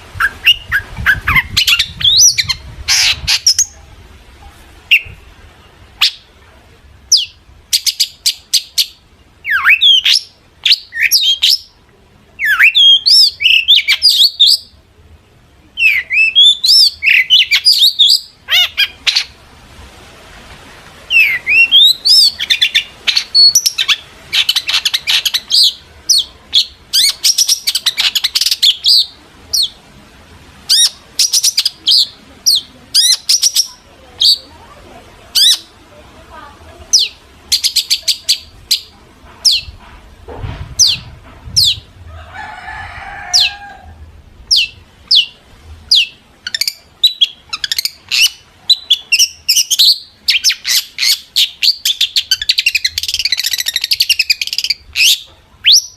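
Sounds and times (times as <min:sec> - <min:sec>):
bird singing chirps and whistles: 0:00.2 - 0:03.8, 0:07.1 - 0:11.7, 0:12.4 - 0:14.7, 0:15.8 - 0:19.3, 0:21.1 - 0:29.7, 0:44.5 - 0:55.9.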